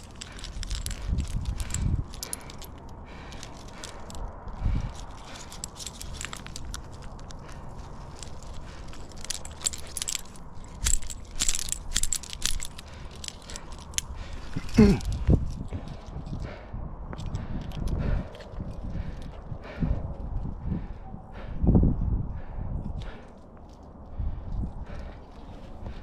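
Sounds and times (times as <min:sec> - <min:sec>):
metal carabiners clinking: 0:00.0 - 0:16.5, 0:17.1 - 0:19.5, 0:22.9 - 0:26.0
low rumble: 0:00.0 - 0:26.0.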